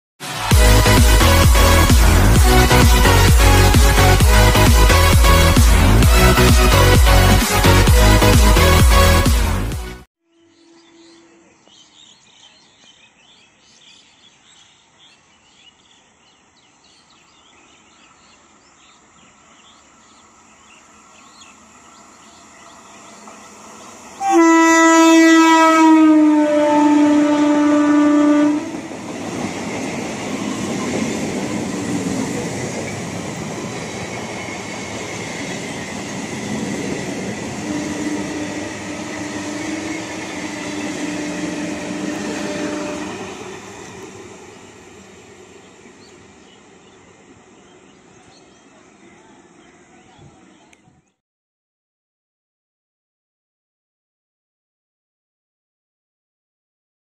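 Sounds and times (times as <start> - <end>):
loud train horn: 0.2 - 11.5, 24.2 - 29.2, 34.4 - 44.0
train rumbling and wheel clatter: 0.6 - 9.8, 18.0 - 24.2, 27.2 - 51.0.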